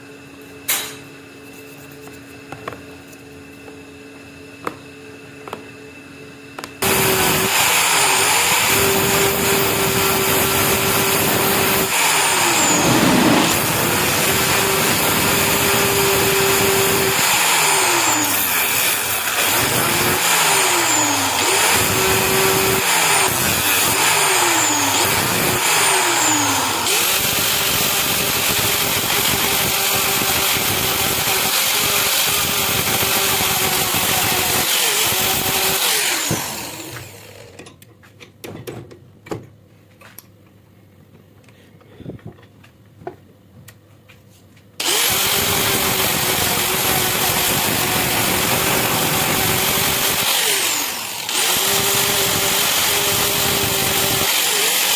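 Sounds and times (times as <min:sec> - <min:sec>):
electric power tool motor running: 0:06.8 - 0:37.6, 0:44.8 - 0:54.9.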